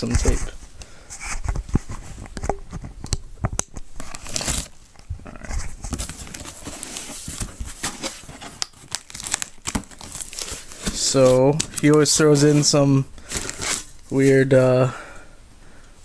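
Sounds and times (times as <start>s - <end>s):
rustling of wrapping: 3.9s - 14.7s
packing tape tearing off cardboard: 4.0s - 4.8s, 5.5s - 14.0s.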